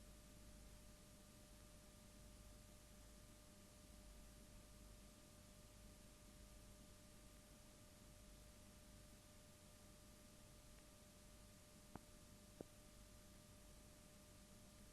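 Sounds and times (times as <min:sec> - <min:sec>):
faint steady hiss: 0:00.0 - 0:14.9
thin constant hum: 0:00.0 - 0:14.9.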